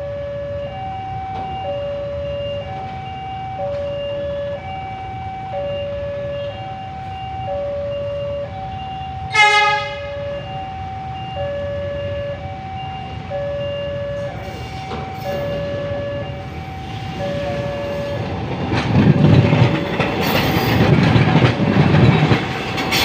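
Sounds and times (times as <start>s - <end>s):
two-tone crossing warning chime: 0.0s - 23.0s
train horn blast: 9.3s - 10.5s.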